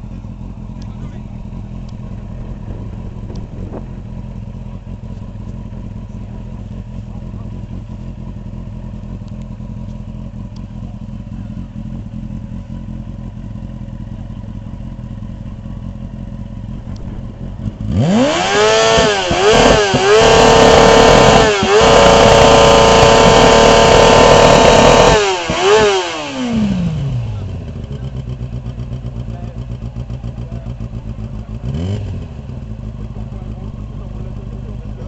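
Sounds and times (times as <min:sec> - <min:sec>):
steady low rumble: 0:00.0 - 0:19.4, 0:26.6 - 0:35.0
motorcycle engine revving: 0:00.0 - 0:35.0.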